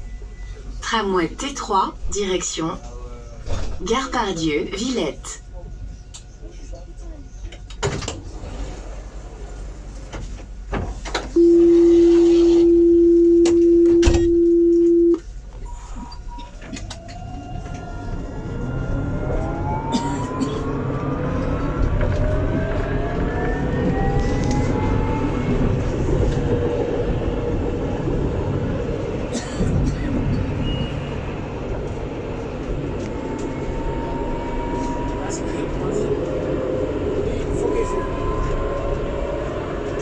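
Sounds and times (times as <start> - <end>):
tram rumble: 0.0 - 40.0
tram motors whining: 4.0 - 40.0
electronic warning tone: 11.4 - 15.2.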